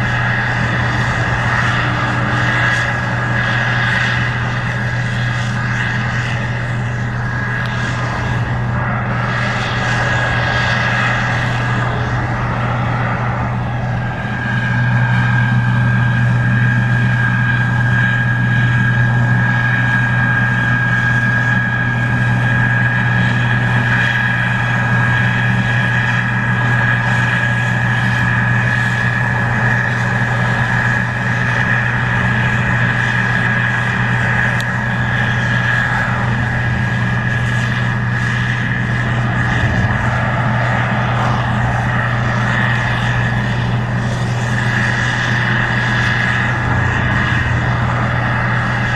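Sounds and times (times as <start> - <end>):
combine diesel drone: 0.0 - 48.9
high mechanical whine: 0.0 - 48.9.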